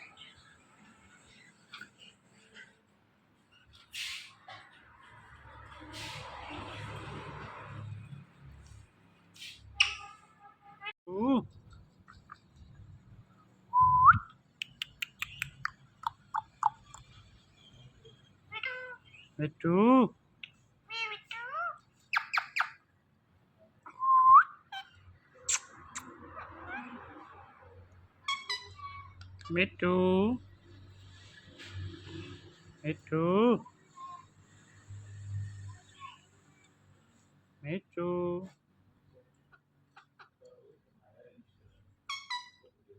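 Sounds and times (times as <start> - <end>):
parrot chirping: 9.8 - 10.2, 13.8 - 19.4, 20.4 - 22.9, 28.2 - 29.5, 42.1 - 42.8
parakeet sharp clicks: 14.6 - 17.1
parrot talking: 18.5 - 19.2, 20.9 - 22.7.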